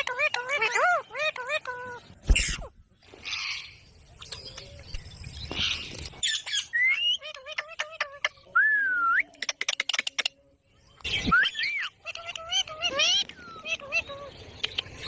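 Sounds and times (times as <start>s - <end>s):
parakeet whistling and squawking: 5.6s - 8.2s, 11.1s - 14.3s.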